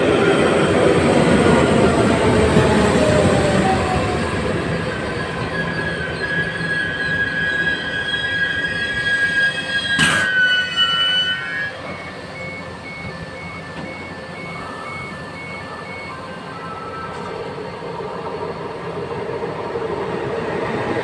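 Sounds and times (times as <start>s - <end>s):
train brakes squealing: 0.0s - 21.0s
sharp bang: 10.0s - 10.4s
regular beeps: 11.9s - 16.2s.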